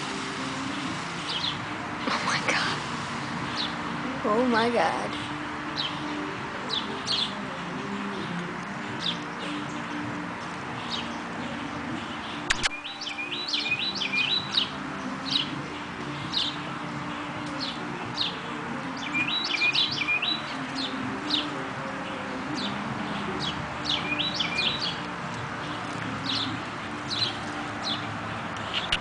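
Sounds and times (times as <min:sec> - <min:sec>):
small birds chirping: 0:00.0 - 0:29.0
sharp click: 0:12.5 - 0:12.8.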